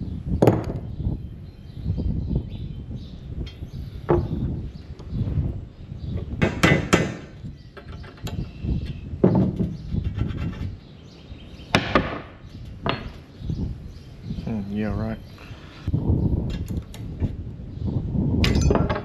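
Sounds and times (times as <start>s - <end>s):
metal knocks and clanks: 18.4s - 19.0s.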